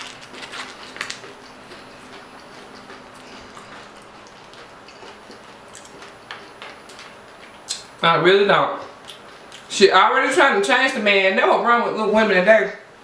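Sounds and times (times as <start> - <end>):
chewing with wet lip smacks: 0.1 - 7.9.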